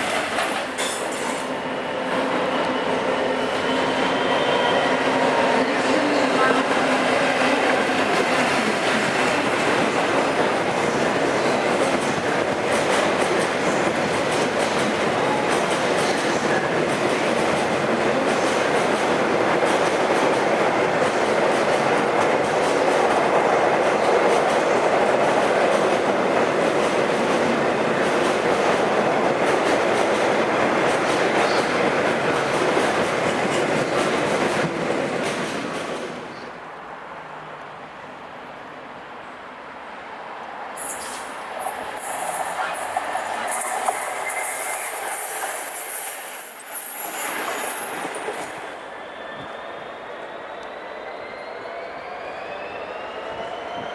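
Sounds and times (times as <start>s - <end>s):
train wheels clattering on rails: 0.0s - 1.5s, 6.6s - 36.3s.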